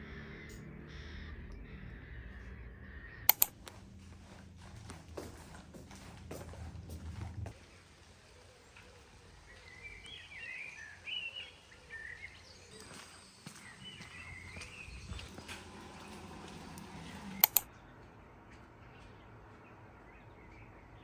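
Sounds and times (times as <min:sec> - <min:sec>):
birds chirping: 0:00.0 - 0:21.0
low background hum: 0:00.0 - 0:21.0
sharp clicks: 0:03.3 - 0:03.8, 0:17.4 - 0:17.7.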